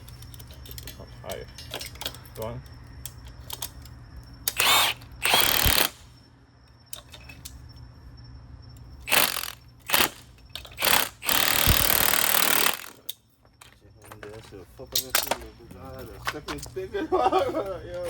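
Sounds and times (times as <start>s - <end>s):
power tool bursts: 4.5s - 6.1s, 9.1s - 10.2s, 10.8s - 13.0s.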